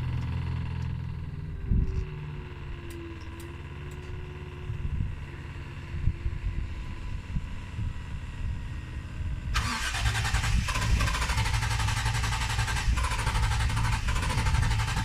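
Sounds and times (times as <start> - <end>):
car engine starting and running: 0.0 - 5.2, 9.4 - 15.0.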